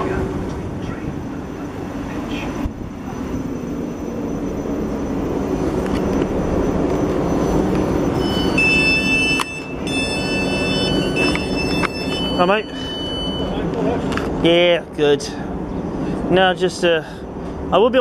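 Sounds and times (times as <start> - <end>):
electric train rumbling: 0.0 - 18.0
high-pitched tones: 2.3 - 13.8.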